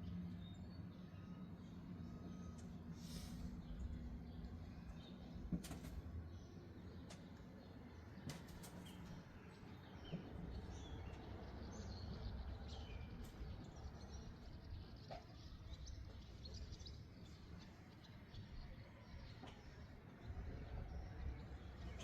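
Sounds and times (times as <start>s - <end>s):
small birds chirping: 6.2s - 22.0s.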